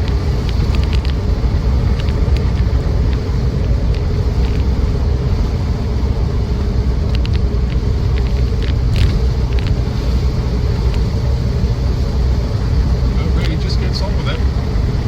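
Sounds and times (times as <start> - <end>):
light rattling clicks: 0.0 - 4.8, 7.0 - 9.8, 13.2 - 14.4
engine and road rumble: 0.0 - 15.0.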